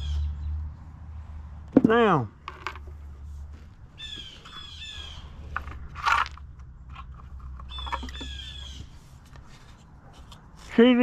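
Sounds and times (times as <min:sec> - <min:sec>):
bird calling harshly: 0:04.0 - 0:05.5, 0:07.7 - 0:09.0.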